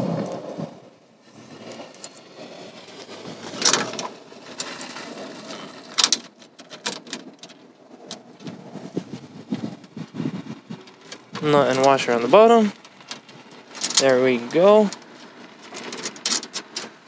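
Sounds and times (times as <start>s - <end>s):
scrapes or knocks: 1.2s - 17.0s
small metal clicks and rattles: 2.9s - 8.6s, 10.7s - 17.0s.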